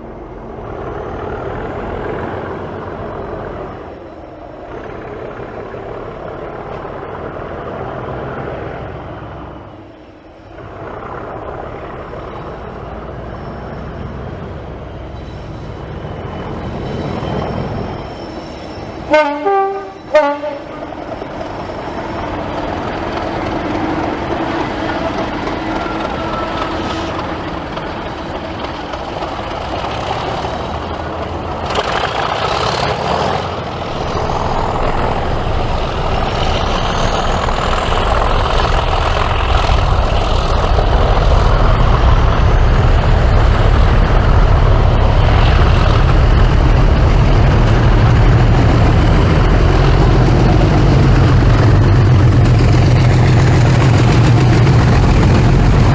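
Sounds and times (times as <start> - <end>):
diesel locomotive engine running: 0.0 - 55.9
high whine: 33.7 - 55.9.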